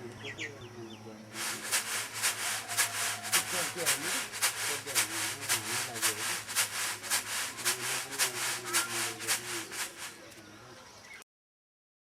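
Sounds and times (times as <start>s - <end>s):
faint voices: 0.0s - 11.1s
rhythmic hand scraping strokes: 1.3s - 10.2s.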